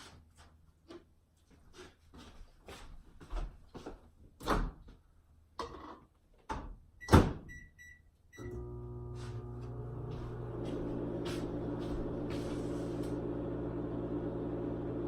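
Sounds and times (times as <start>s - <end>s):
microwave oven humming: 8.4s - 15.0s.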